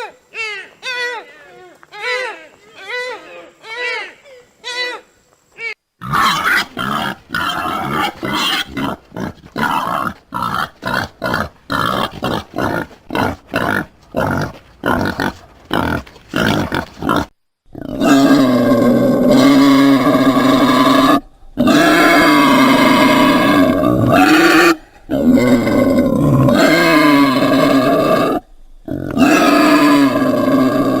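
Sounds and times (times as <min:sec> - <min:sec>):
long drawn-out animal calls: 0:00.0 - 0:31.0
animal grunting calls: 0:06.0 - 0:31.0.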